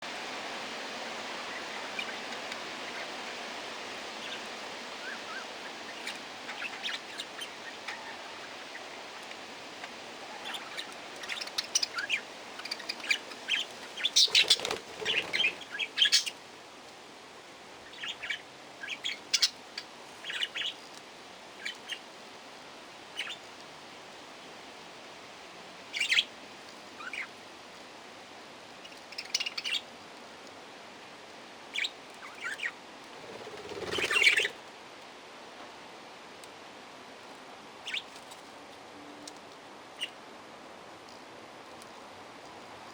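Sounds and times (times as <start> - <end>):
parakeets chirping and squawking: 5.0 - 8.7, 10.2 - 16.3, 26.0 - 26.3, 31.8 - 34.6.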